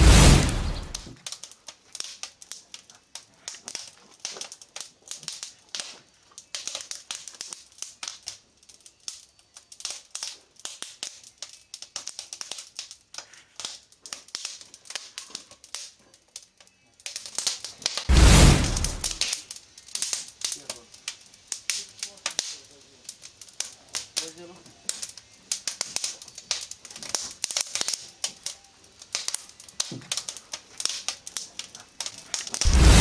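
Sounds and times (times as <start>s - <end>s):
dense crackling clicks: 0.0s - 5.9s, 17.4s - 33.0s.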